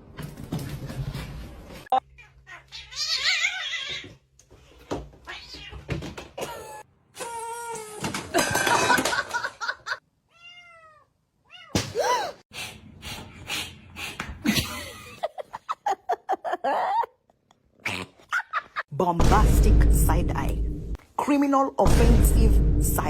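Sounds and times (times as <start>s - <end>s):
cat meowing: 5.2s - 5.9s, 10.3s - 11.8s.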